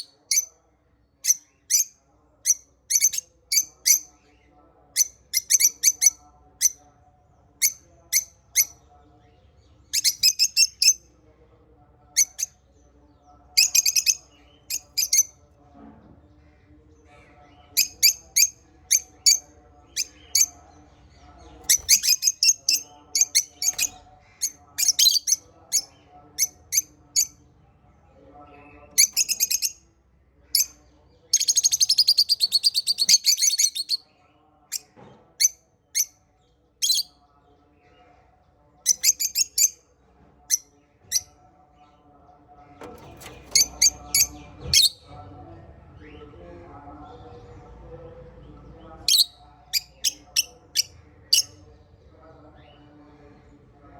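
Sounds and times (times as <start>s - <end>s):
parrots chirping: 13.6s - 15.3s, 21.6s - 24.0s, 24.8s - 27.3s, 29.0s - 29.8s, 31.4s - 34.0s, 43.0s - 45.1s.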